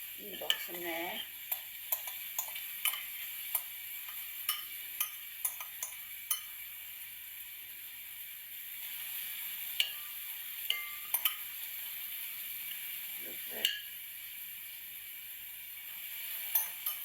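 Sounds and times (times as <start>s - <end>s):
onions sizzling: 0.0s - 17.0s
utensil tapping dish: 0.4s - 6.5s, 9.8s - 10.1s, 10.7s - 11.4s.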